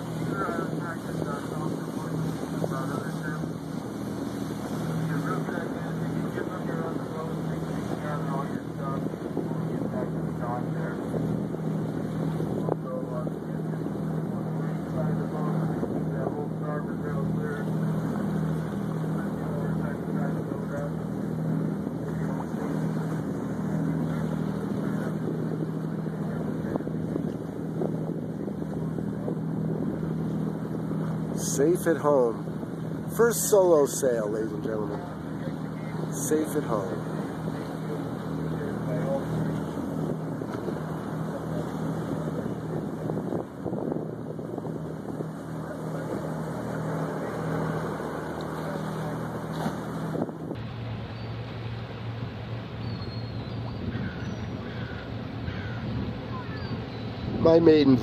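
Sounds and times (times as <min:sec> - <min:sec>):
boat motor humming: 0:00.0 - 0:58.0
water: 0:00.0 - 0:58.0
wind buffeting microphone: 0:00.0 - 0:58.0
wind noise: 0:21.5 - 0:31.4, 0:38.6 - 0:48.1, 0:49.6 - 0:51.3.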